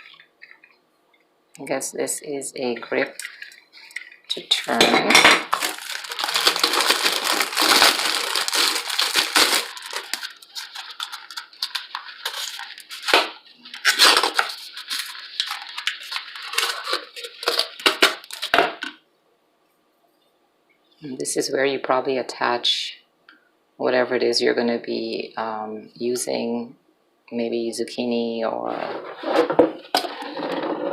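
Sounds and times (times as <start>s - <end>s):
plastic packaging crackling: 3.0s - 19.0s.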